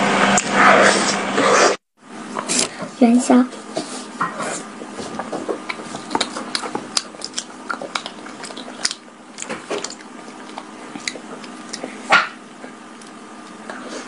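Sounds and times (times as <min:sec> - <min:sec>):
chewing sticky rice balls: 0:03.8 - 0:14.0.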